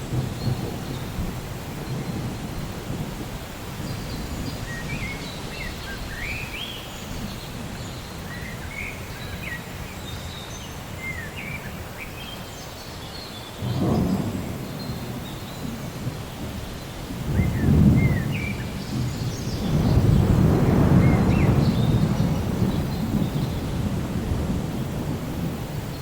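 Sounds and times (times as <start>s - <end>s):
distant thunder: 0.0s - 6.5s, 13.6s - 26.0s
rain: 0.0s - 26.0s.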